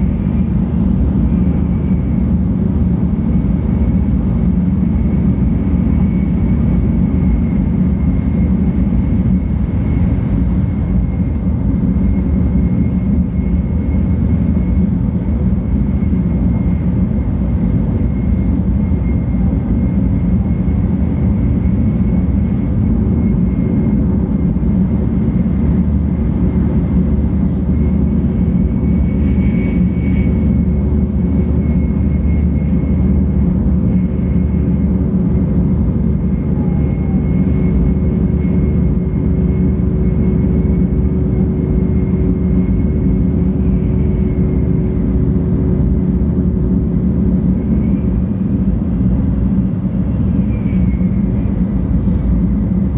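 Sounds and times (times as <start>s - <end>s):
train cabin low rumble: 0.0s - 52.9s.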